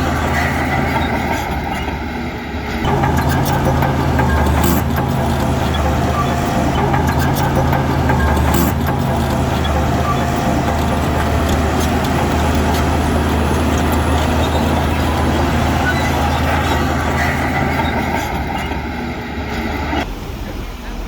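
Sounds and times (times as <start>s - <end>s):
heavy diesel machinery drone: 0.0s - 21.0s.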